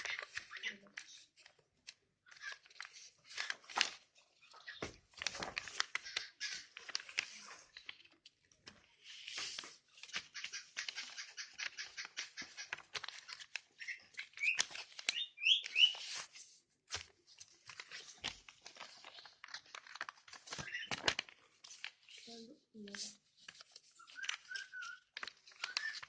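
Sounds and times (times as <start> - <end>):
paper rustling and crinkling: 0.0 - 26.0
paper snapping: 5.2 - 8.1, 9.2 - 13.6, 17.7 - 21.9
short high paper squeaks: 9.0 - 16.3, 23.8 - 26.0.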